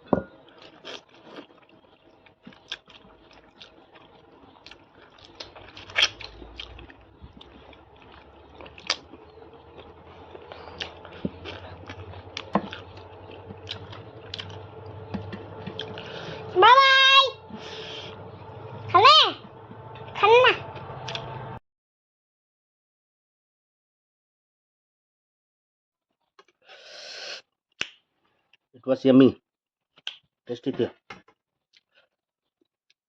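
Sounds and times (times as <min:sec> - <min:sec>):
person chewing food: 0:00.3 - 0:16.5, 0:20.8 - 0:21.3.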